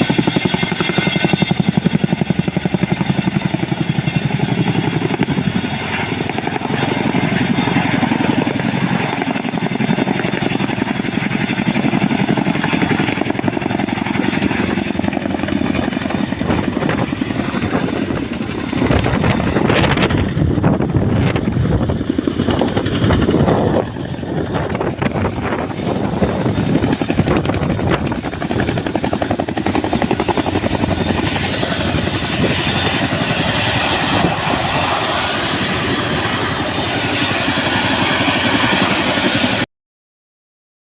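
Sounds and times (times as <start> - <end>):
helicopter rotors beating: 0.0 - 39.6.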